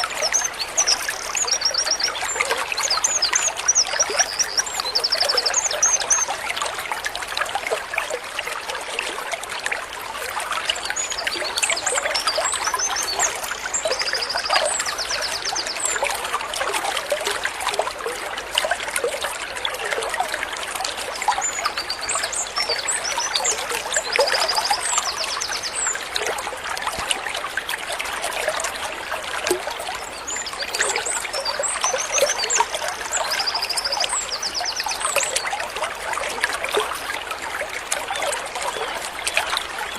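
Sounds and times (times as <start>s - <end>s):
small birds singing: 0.0s - 6.5s, 10.7s - 16.3s, 21.1s - 26.3s, 29.9s - 35.7s
water trickling in a stream: 0.0s - 39.9s.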